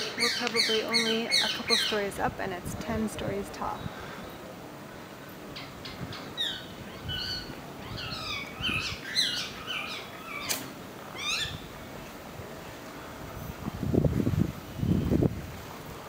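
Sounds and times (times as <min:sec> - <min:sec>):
birds chirping: 0:00.0 - 0:13.3
sharp click: 0:10.4 - 0:10.7.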